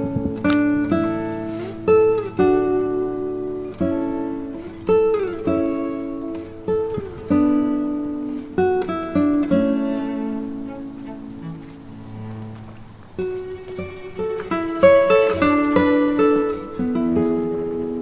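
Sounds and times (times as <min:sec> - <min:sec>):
plucked string instrument: 0:00.0 - 0:18.0.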